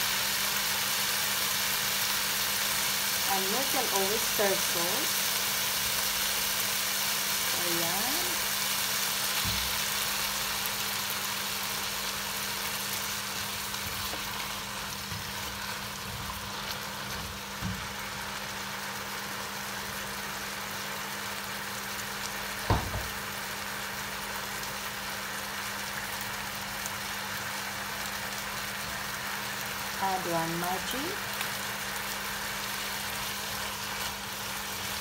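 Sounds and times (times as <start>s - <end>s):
food sizzling in a pot: 0.0s - 35.0s
sharp knock: 22.7s - 23.1s.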